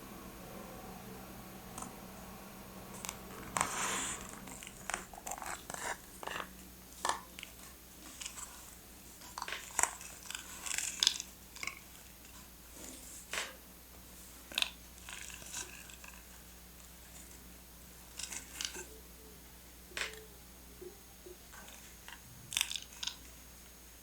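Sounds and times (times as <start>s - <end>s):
paper rustling: 3.0s - 6.5s
paper crinkling: 3.0s - 13.3s.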